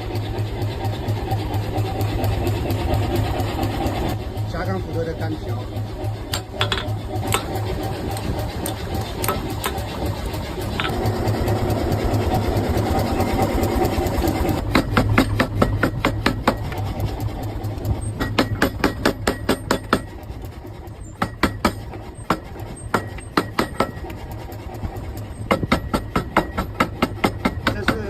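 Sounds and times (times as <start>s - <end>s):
machine hum: 0.0s - 28.0s
hammer striking metal: 6.3s - 9.9s, 18.2s - 20.2s, 21.2s - 24.0s, 25.5s - 28.0s.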